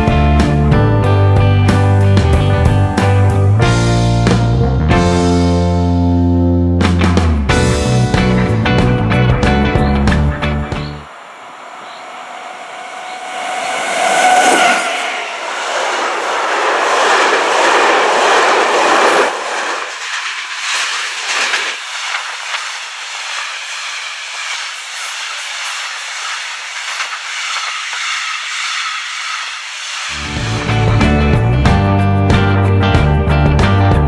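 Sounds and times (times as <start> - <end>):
train wheels rushing on rails: 7.2 - 32.0
electric locomotive passing: 10.2 - 32.0.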